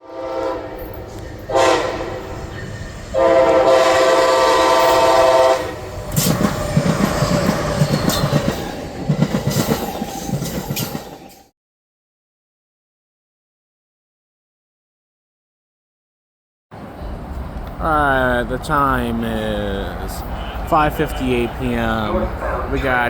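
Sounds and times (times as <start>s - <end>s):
locomotive horn blasts: 0.0s - 0.9s, 1.5s - 2.4s, 3.1s - 5.8s, 20.2s - 23.0s
train wheels clattering over rails: 6.0s - 11.5s.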